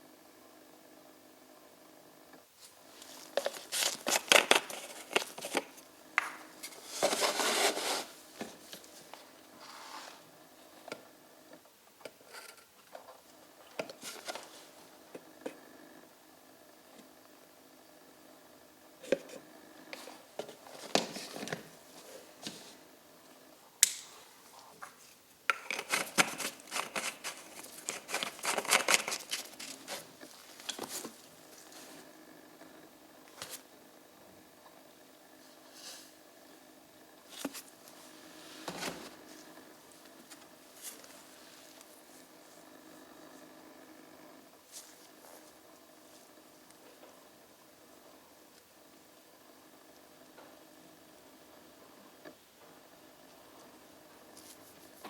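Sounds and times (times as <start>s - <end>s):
rustling and scraping: 2.6s - 10.3s, 12.1s - 15.6s, 20.0s - 22.9s, 24.2s - 32.2s, 37.3s - 43.0s, 44.6s - 46.3s
rapid clicking and scraping: 25.5s - 31.3s.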